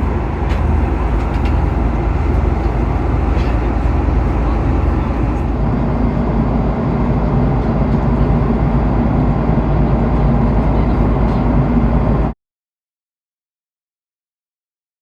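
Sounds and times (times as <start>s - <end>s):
airliner cabin roar: 0.0s - 12.4s.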